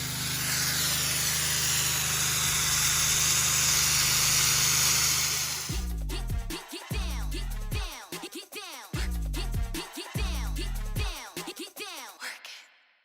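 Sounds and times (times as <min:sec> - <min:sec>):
pressure washer spray hissing: 0:00.0 - 0:05.8
music: 0:05.7 - 0:12.8.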